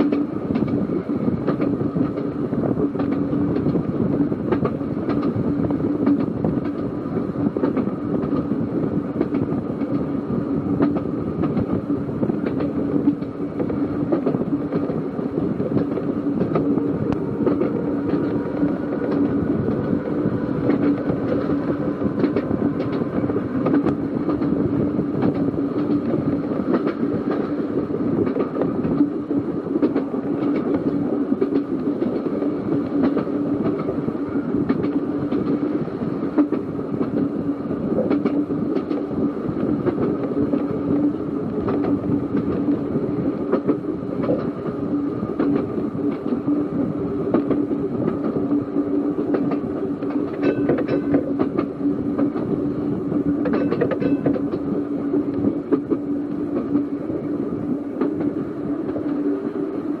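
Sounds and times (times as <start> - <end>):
electric tram hum: 0.0 - 60.0
wheels clicking over rail joints: 10.8 - 46.5, 47.3 - 59.3.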